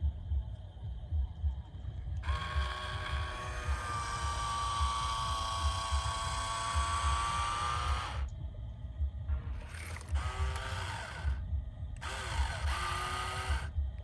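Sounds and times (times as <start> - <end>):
low thumping: 0.0 - 14.0
small electric motor whining: 2.2 - 8.3, 9.6 - 11.4, 12.0 - 13.8.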